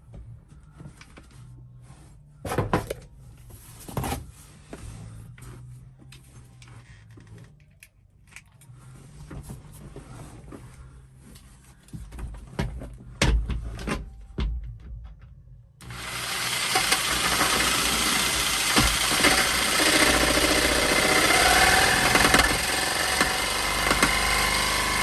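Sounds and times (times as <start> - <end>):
jigsaw cutting: 15.8 - 25.0.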